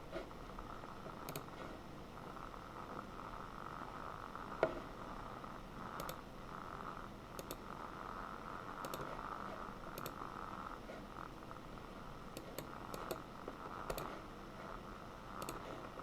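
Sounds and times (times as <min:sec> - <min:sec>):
background hum: 0:00.0 - 0:16.0
computer mouse clicking: 0:01.2 - 0:01.7, 0:05.9 - 0:06.2, 0:07.4 - 0:07.6, 0:08.8 - 0:10.2, 0:12.3 - 0:14.3, 0:15.4 - 0:16.0.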